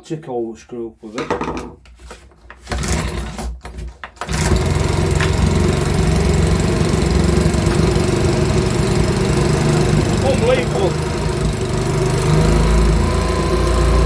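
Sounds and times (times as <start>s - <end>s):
leaf blower engine pull-started: 4.2s - 14.0s.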